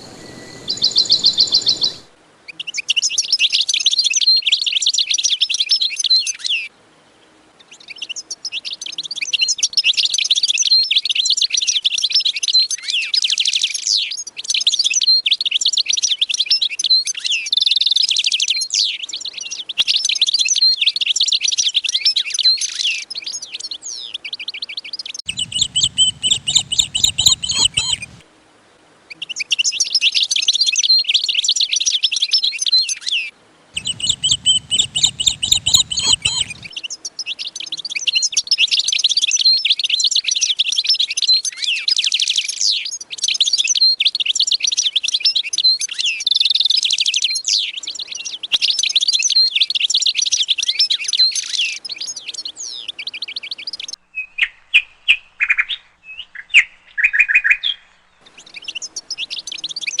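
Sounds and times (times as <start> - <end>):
cage birds chirping and warbling: 0.0 - 2.1, 22.4 - 28.2, 32.4 - 40.1, 47.5 - 60.0
low hum: 0.0 - 2.2, 25.3 - 28.2, 33.8 - 36.7.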